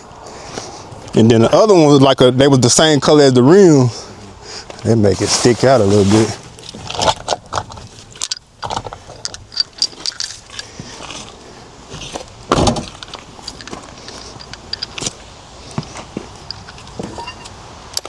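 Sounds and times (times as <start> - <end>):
loud thump: 12.5 - 13.0.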